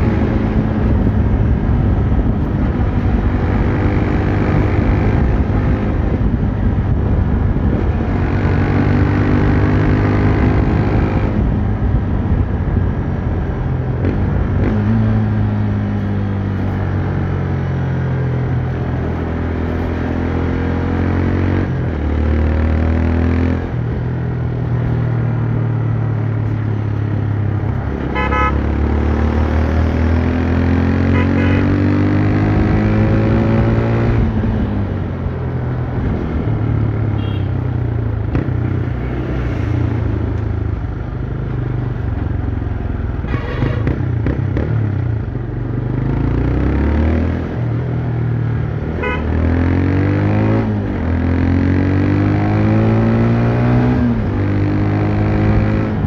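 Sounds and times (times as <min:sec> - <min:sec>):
motorcycle engine accelerating: 0:00.0 - 0:56.0
horn beeps: 0:28.1 - 0:28.6, 0:31.0 - 0:31.8, 0:37.2 - 0:37.6.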